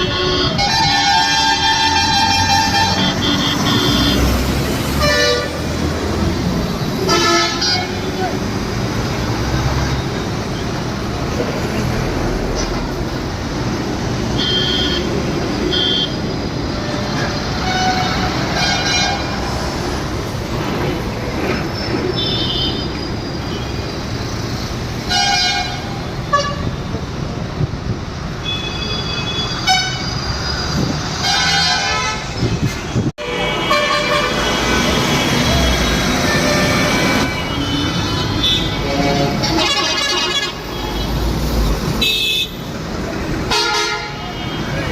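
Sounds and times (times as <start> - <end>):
vehicle horns tooting: 0.0 - 5.6, 7.0 - 8.3, 14.3 - 16.3, 22.1 - 23.8, 28.4 - 30.2, 31.2 - 41.2, 41.9 - 42.7, 43.5 - 44.9
road noise: 0.0 - 44.9.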